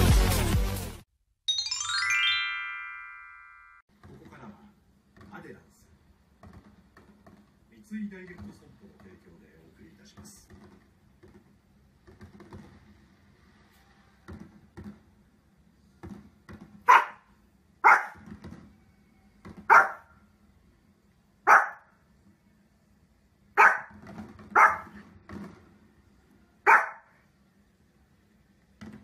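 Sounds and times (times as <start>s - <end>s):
small dog barking: 16.9s - 18.2s, 19.7s - 20.1s, 21.4s - 21.9s, 23.6s - 25.0s, 26.6s - 27.2s.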